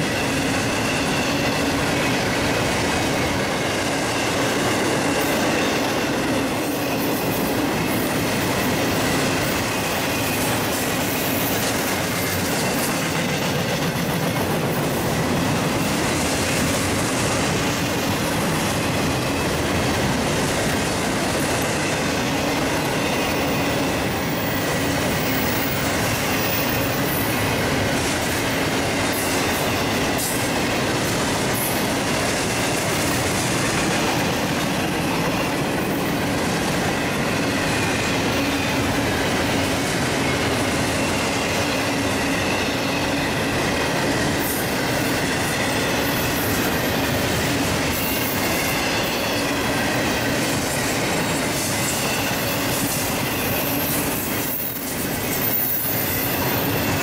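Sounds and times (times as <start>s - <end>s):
train wheels rumbling and rattling: 0.0s - 57.0s
faint high squeal: 22.9s - 27.6s, 45.6s - 50.0s, 51.0s - 57.0s.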